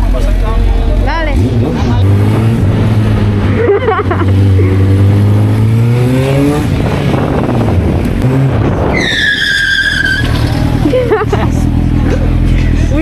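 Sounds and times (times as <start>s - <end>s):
motorcycle engine accelerating: 0.0s - 13.0s
high squeal: 8.9s - 10.9s.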